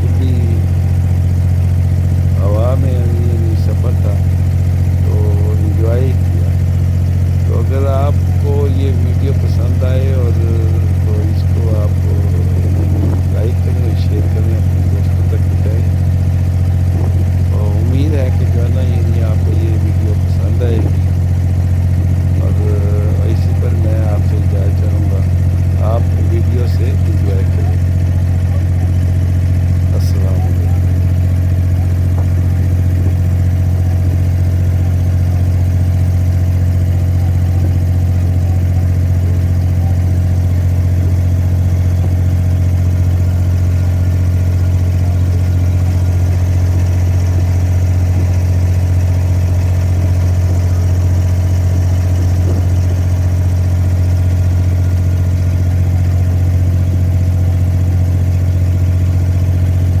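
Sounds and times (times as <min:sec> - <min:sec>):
boat diesel engine drone: 0:00.0 - 1:00.0.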